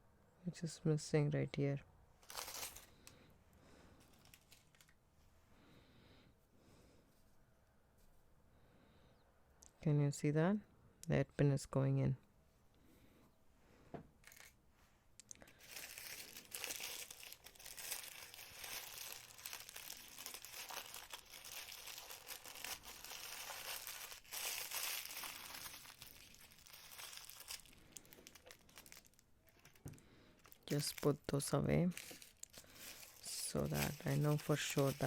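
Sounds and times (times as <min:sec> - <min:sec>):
packaging rustling: 0:02.2 - 0:03.0, 0:04.0 - 0:05.0, 0:14.2 - 0:14.5, 0:15.4 - 0:35.0.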